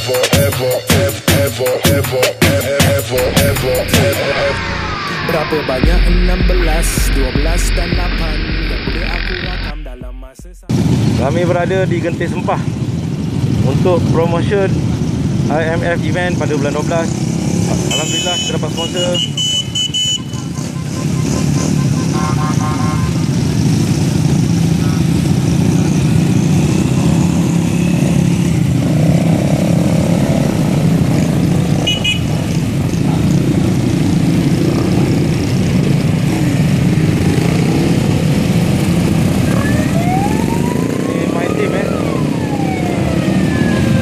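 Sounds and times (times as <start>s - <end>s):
road and wind noise: 2.4s - 10.1s, 10.7s - 44.0s
siren rising: 3.1s - 10.7s, 38.9s - 44.0s
motorcycle engines running: 10.7s - 44.0s.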